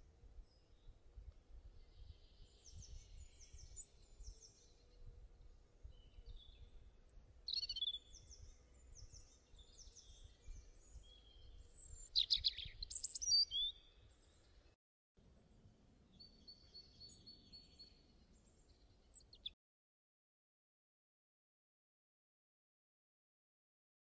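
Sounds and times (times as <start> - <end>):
small birds chirping: 1.6 - 14.8, 16.1 - 19.6.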